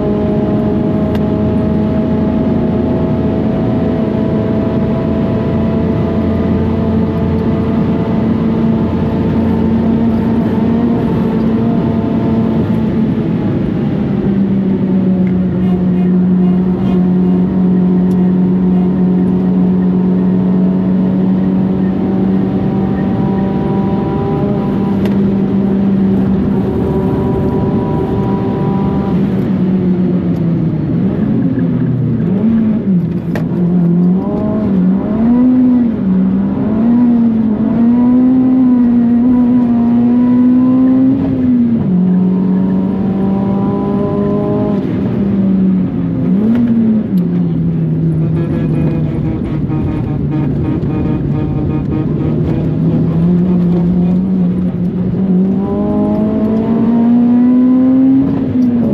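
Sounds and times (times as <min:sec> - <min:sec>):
car engine revving under load: 0:00.0 - 0:58.9.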